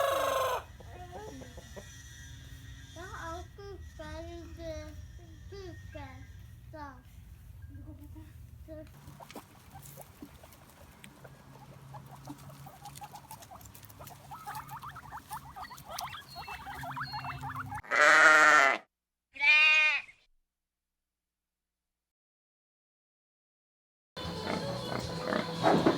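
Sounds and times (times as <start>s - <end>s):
faint low hum: 0.6s - 17.8s
faint high chirps: 12.3s - 17.8s
loud bleats: 17.8s - 20.2s.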